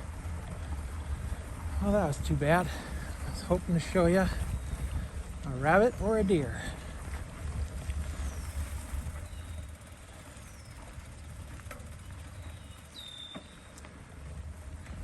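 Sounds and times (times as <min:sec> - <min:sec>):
wind rumbling on microphone: 0:00.0 - 0:15.0
bike squeaks: 0:08.0 - 0:14.0.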